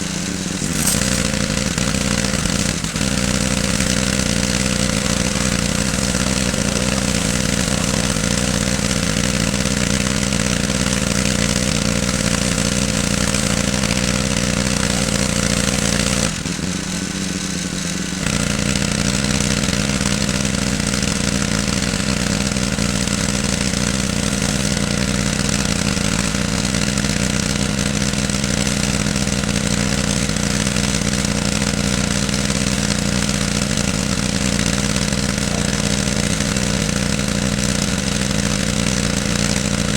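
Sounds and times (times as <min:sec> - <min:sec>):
water spray hissing: 0:00.0 - 0:16.4
pressure washer engine running: 0:00.0 - 0:39.9.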